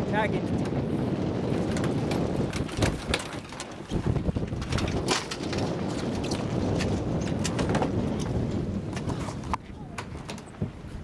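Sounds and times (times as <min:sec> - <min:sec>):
wind buffeting microphone: 0:00.0 - 0:11.0
sharp knocks and rattles: 0:01.4 - 0:10.6.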